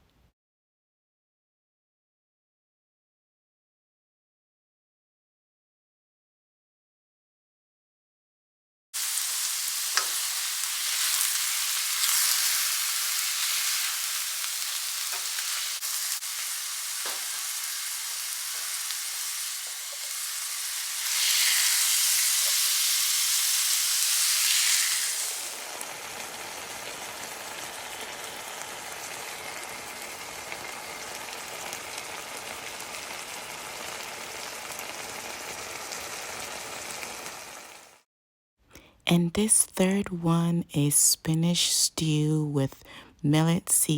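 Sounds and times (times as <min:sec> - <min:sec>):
food sizzling in a pan: 0:09.0 - 0:38.0.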